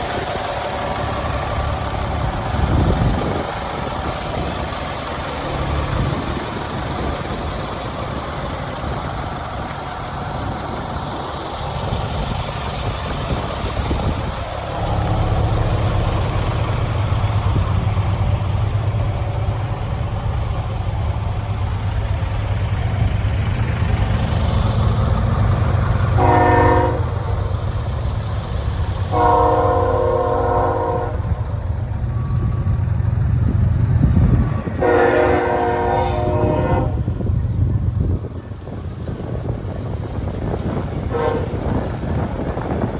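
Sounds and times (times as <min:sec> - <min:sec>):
diesel truck engine running: 0:00.0 - 0:42.9
truck horn honking: 0:26.2 - 0:27.2, 0:29.1 - 0:31.4, 0:34.8 - 0:37.1.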